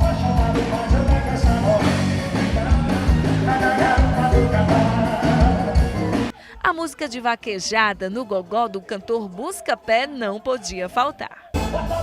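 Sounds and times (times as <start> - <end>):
live band music: 0.0 - 6.3, 11.5 - 12.0
steady drum beat: 0.0 - 6.3.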